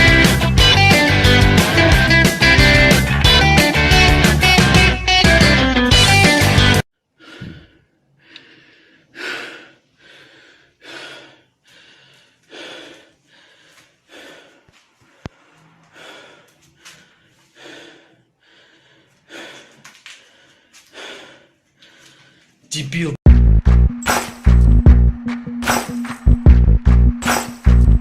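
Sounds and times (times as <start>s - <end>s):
heavy rhythmic breathing: 0.0s - 5.0s, 5.9s - 22.7s.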